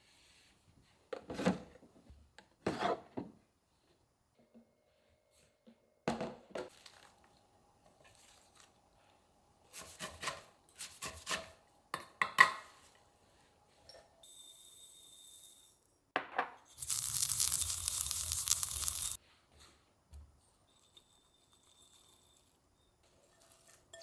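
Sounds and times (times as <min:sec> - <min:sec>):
hiss with high tone: 0:16.8 - 0:19.2.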